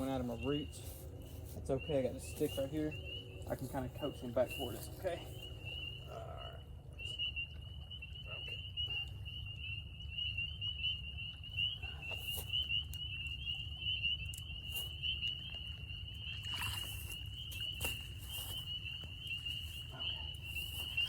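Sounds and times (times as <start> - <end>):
frogs peeping chorus: 0.0 - 21.0
water splashes: 16.3 - 17.8.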